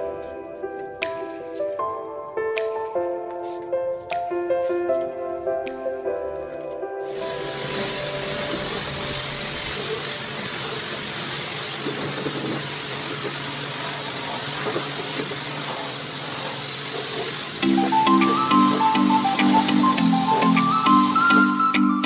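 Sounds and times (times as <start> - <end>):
pressure washer motor hum: 7.0 - 22.0
pressure washer water jet hiss: 7.0 - 22.0.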